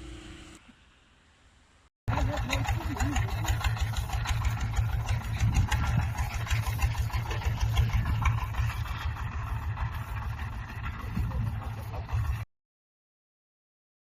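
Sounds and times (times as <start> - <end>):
straw baler running: 2.1 - 12.5.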